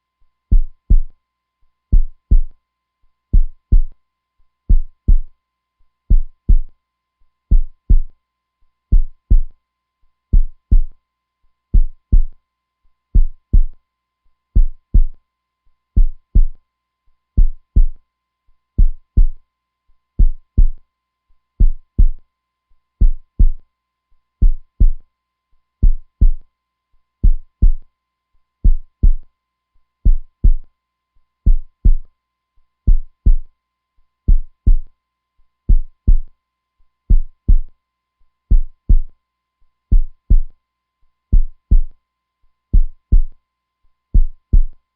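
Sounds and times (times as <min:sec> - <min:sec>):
heartbeat thumps: 0:00.5 - 0:01.1, 0:01.9 - 0:02.5, 0:03.4 - 0:03.9, 0:04.7 - 0:05.3, 0:06.1 - 0:06.7, 0:07.5 - 0:08.1, 0:08.9 - 0:09.5, 0:10.4 - 0:10.9, 0:11.8 - 0:12.3, 0:13.2 - 0:13.8, 0:14.6 - 0:15.2, 0:16.0 - 0:16.6, 0:17.4 - 0:18.0, 0:18.8 - 0:19.4, 0:20.2 - 0:20.8, 0:21.6 - 0:22.2, 0:23.0 - 0:23.6, 0:24.4 - 0:25.0, 0:25.8 - 0:26.4, 0:27.2 - 0:27.8, 0:28.6 - 0:29.2, 0:30.1 - 0:30.6, 0:31.5 - 0:32.0, 0:32.9 - 0:33.5, 0:34.3 - 0:34.9, 0:35.7 - 0:36.3, 0:37.1 - 0:37.7, 0:38.5 - 0:39.1, 0:39.9 - 0:40.5, 0:41.3 - 0:41.9, 0:42.8 - 0:43.3, 0:44.2 - 0:44.8.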